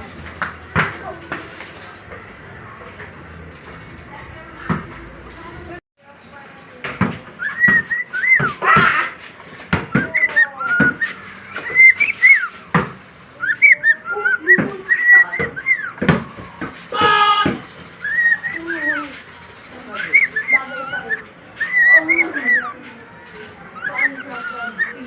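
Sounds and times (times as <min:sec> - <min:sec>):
cockatiel whistling: 0:07.4 - 0:08.9, 0:09.9 - 0:12.6, 0:13.4 - 0:16.0, 0:18.0 - 0:19.1, 0:20.0 - 0:22.8.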